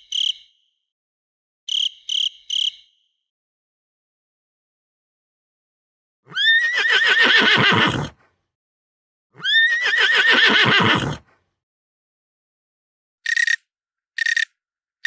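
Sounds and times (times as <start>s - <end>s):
horse whinnying: 6.3s - 8.2s, 9.4s - 11.3s.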